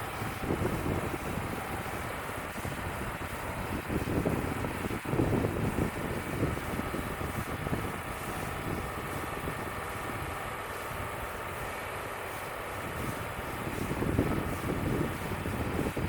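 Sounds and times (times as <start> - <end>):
band sawmill running: 0.0 - 16.0
wind buffeting microphone: 0.0 - 16.0.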